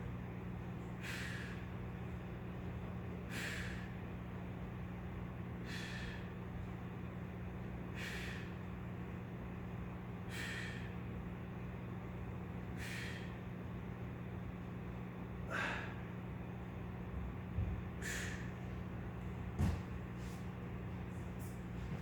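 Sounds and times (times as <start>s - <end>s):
steady low hum: 0.0s - 22.0s
man's forceful breaths: 0.8s - 2.2s, 3.1s - 4.2s, 5.6s - 6.8s, 7.8s - 8.9s, 10.2s - 11.1s, 12.6s - 13.5s, 15.4s - 16.1s, 17.8s - 20.4s.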